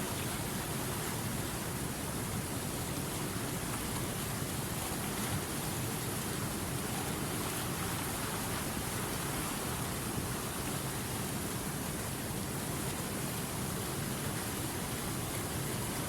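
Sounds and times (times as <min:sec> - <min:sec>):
river water running over rocks: 0:00.0 - 0:16.0.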